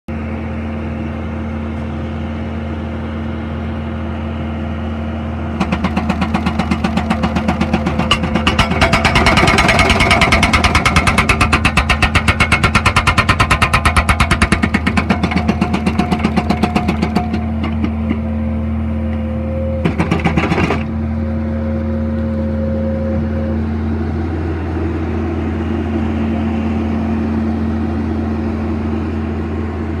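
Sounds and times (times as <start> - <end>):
loader engine running: 0.1 - 30.0
hydraulic breaker hammering: 5.6 - 18.3, 19.8 - 20.9.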